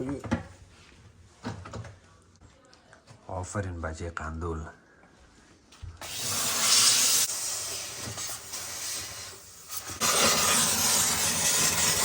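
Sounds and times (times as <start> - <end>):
steamer hissing: 6.0 - 12.0.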